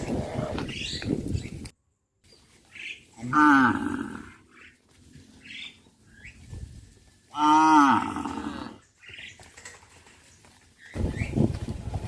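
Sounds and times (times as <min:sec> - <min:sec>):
cow mooing: 0:07.4 - 0:08.8.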